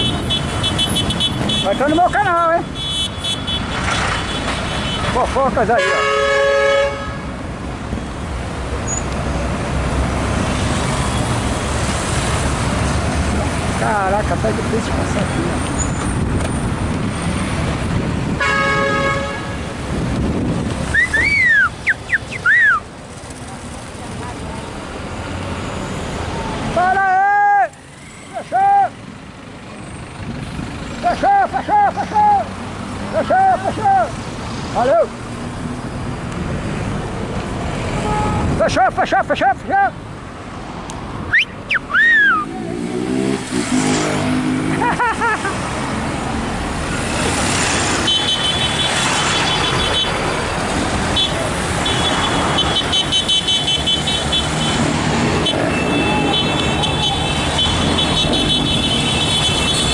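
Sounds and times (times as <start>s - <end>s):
street traffic rumbling: 0.0s - 59.9s
vehicle horn honking: 5.7s - 7.3s, 18.4s - 19.7s, 38.0s - 38.6s, 55.4s - 59.9s
loud whistling: 20.9s - 22.8s, 41.3s - 42.5s
motorcycle engine revving: 42.4s - 45.0s.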